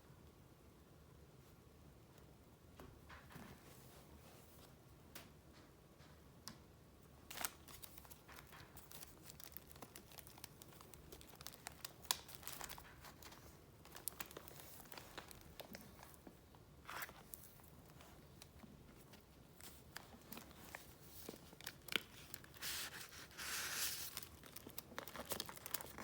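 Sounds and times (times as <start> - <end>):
paper rustling and crinkling: 7.3 - 26.0.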